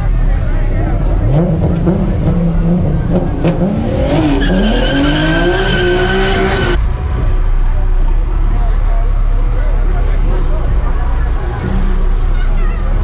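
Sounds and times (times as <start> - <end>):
car engine revving: 0.0 - 12.3
tires squealing: 0.9 - 6.8.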